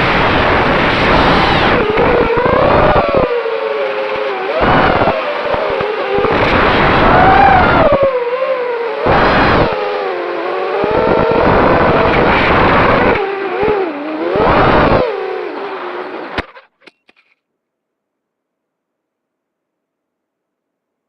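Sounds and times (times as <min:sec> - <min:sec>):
quadcopter motors whining: 0:00.0 - 0:16.5
wind noise on microphone: 0:00.0 - 0:16.7.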